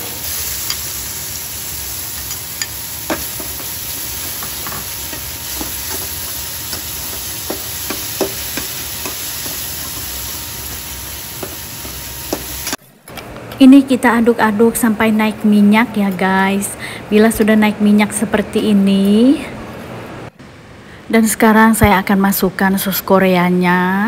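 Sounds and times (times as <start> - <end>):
chili paste sizzling in a wok: 0.0 - 12.8.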